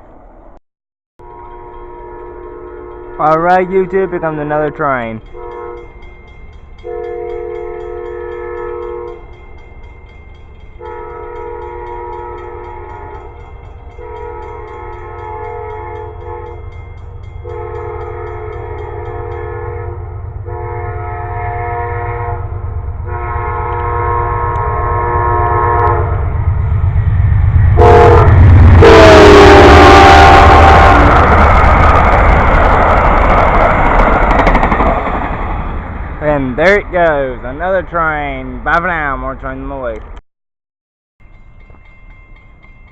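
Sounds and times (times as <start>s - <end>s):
train air horn blasts: 1.2s - 4.4s, 5.3s - 6.0s, 6.8s - 9.3s, 10.8s - 13.4s, 14.0s - 16.7s, 17.4s - 26.4s, 27.8s - 31.3s
train rumbling: 1.2s - 40.2s.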